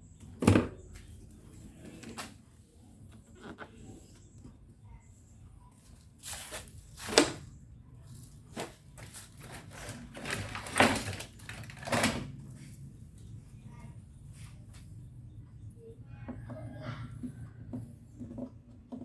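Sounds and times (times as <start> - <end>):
objects scraping and rustling: 0.6 - 4.7, 5.3 - 15.4.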